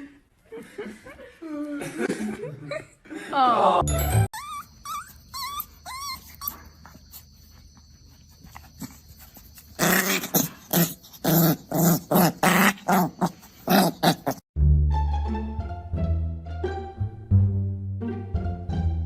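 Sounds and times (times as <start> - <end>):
dog whining: 4.3 - 7.3
dog growling: 9.8 - 14.4.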